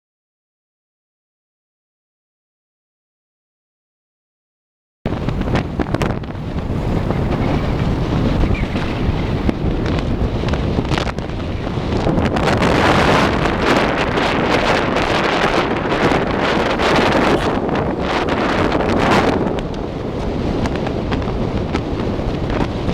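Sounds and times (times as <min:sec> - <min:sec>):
wind buffeting microphone: 0:05.1 - 0:22.9.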